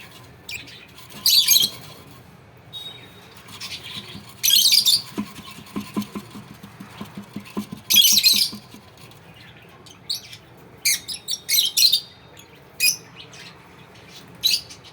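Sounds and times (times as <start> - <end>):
lovebirds squawking: 3.0 - 9.3.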